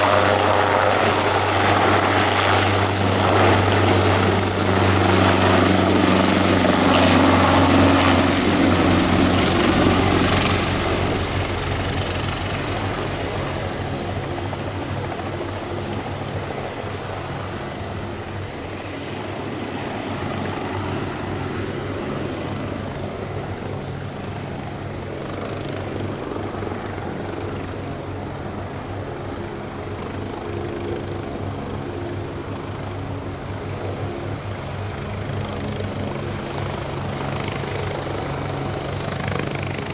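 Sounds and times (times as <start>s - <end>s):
high turbine whine: 0.0s - 23.8s
helicopter rotor beating: 0.0s - 27.7s, 30.0s - 39.9s.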